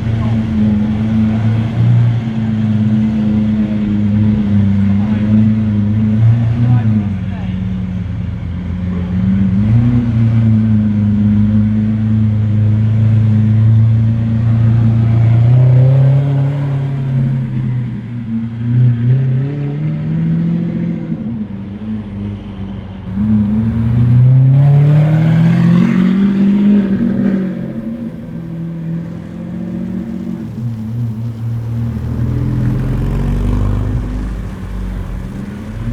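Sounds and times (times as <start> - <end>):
car engine revving: 23.1 - 35.9.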